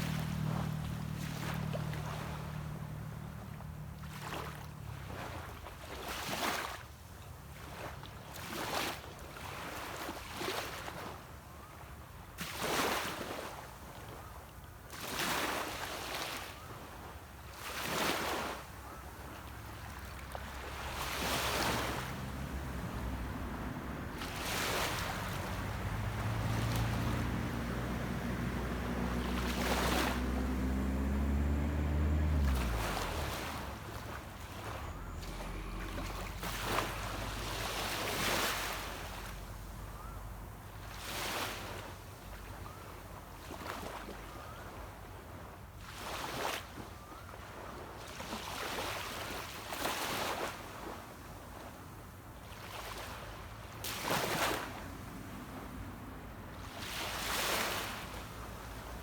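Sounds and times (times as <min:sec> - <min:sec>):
boat engine humming: 0:00.0 - 0:05.8, 0:18.7 - 0:43.4, 0:54.6 - 0:59.0
waves washing onto a beach: 0:00.0 - 0:11.7, 0:14.8 - 0:59.0.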